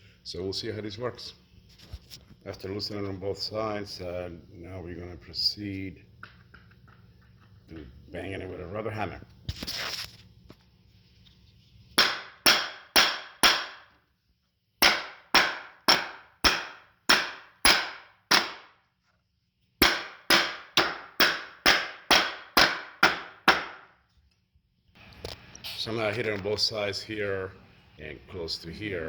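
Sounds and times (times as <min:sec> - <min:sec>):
rubber mallet striking metal frame: 0:12.0 - 0:13.9, 0:14.8 - 0:18.7, 0:19.8 - 0:23.9.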